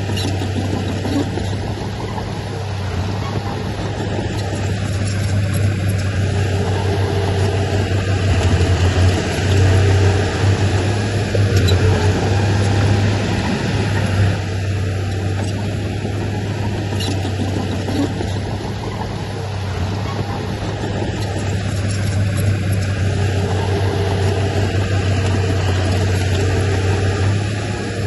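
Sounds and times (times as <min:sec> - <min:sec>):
heavy diesel engine droning: 0:00.0 - 0:28.0.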